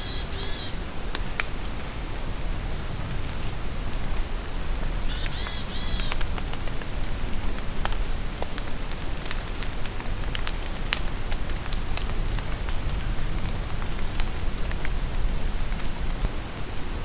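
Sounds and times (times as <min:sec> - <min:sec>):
songbird singing: 0:00.0 - 0:02.4, 0:03.4 - 0:06.3
rain falling in a forest: 0:00.0 - 0:17.0
raindrops ticking: 0:00.9 - 0:16.7.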